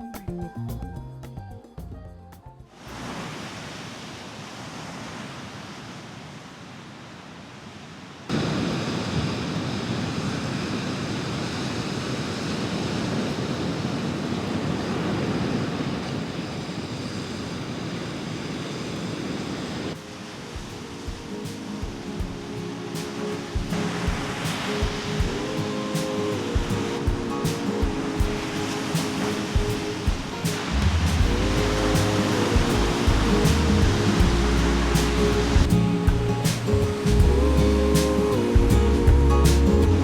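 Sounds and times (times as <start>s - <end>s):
music: 0.0s - 2.7s, 20.0s - 40.0s
ocean surf rushing: 2.7s - 40.0s.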